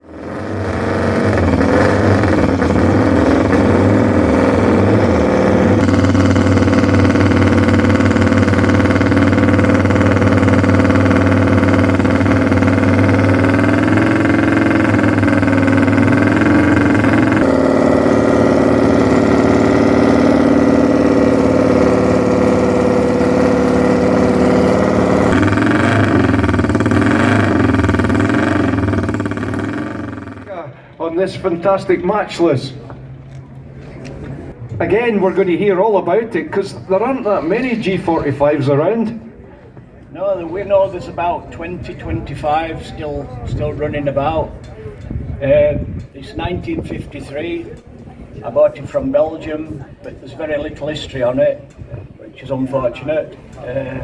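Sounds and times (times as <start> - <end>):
motorcycle engine revving: 0.0 - 30.5.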